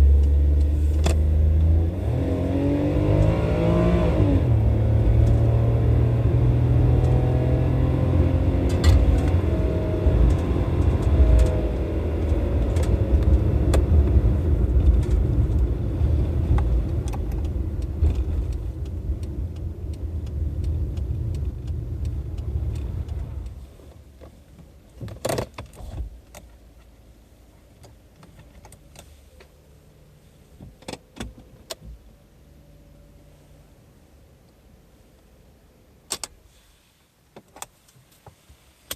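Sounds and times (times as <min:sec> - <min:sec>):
car engine revving down: 0:00.0 - 0:23.5.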